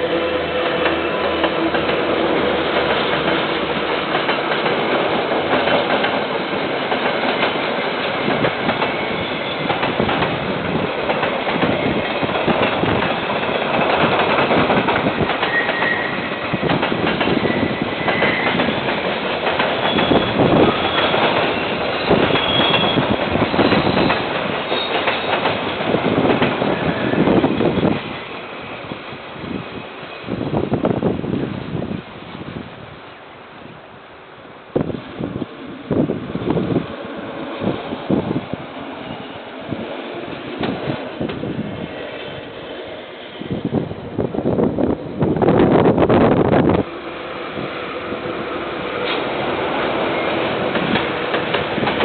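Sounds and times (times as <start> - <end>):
train wheels clacking over joints: 0.6 - 27.2, 50.2 - 52.0
faint wheel squeals: 15.5 - 16.2.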